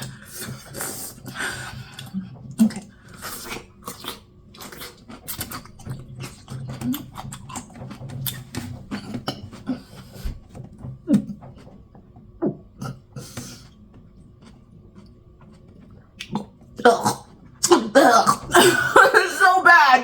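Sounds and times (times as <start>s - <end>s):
chewing pickle crunching: 2.6s - 9.4s, 12.8s - 17.8s.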